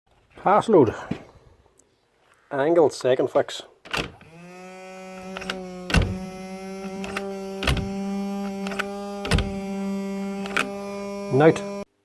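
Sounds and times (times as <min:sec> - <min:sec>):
nail gun sharp clicks: 0:05.2 - 0:06.0, 0:08.6 - 0:08.9.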